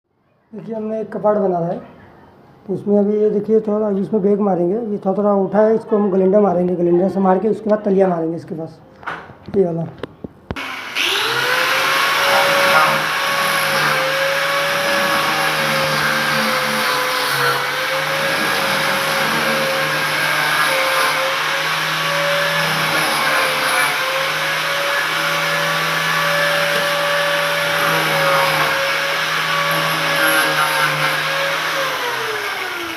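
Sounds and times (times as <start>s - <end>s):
power grinder whining on wood: 10.6s - 32.9s.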